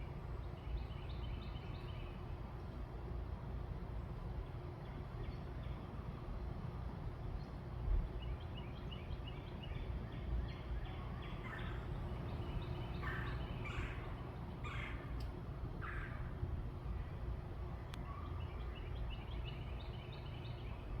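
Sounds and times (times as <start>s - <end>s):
wild birds calling: 10.6s - 16.5s
steady low rumble: 11.3s - 21.0s.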